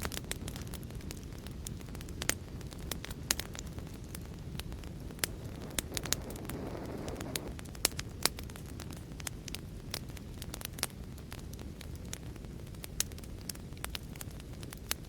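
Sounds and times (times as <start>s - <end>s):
fireplace fire crackling: 0.0s - 15.0s
rush of hissing: 5.1s - 7.6s.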